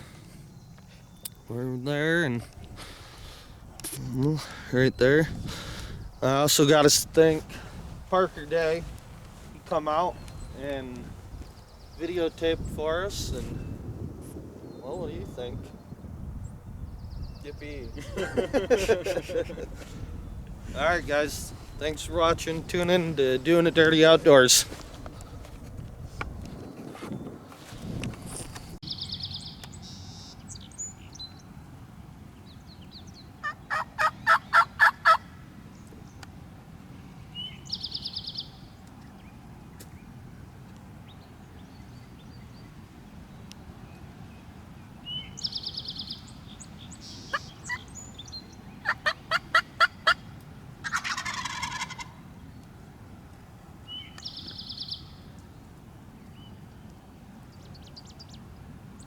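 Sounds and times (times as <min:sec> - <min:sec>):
songbird trill: 0:00.0 - 0:13.8, 0:14.6 - 0:25.4, 0:28.8 - 0:36.4, 0:37.2 - 0:53.1, 0:53.8 - 0:59.0
turkey gobble: 0:33.4 - 0:35.3, 0:47.2 - 0:47.9, 0:48.8 - 0:50.2, 0:50.8 - 0:52.2
turkey yelps: 0:33.4 - 0:35.3, 0:47.2 - 0:47.9, 0:48.8 - 0:50.2, 0:50.8 - 0:52.2.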